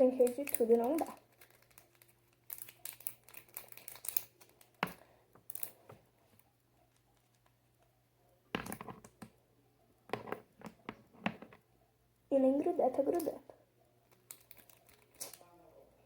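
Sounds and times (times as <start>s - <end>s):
fidget toy clicking and crinkling: 0.0s - 5.9s, 13.0s - 13.4s, 14.1s - 15.5s.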